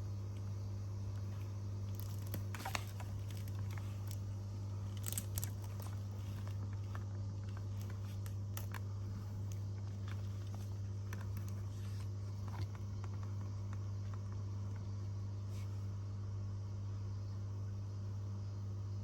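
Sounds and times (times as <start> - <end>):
steady low hum: 0.0 - 19.0
light scratches and clicks: 1.1 - 14.9.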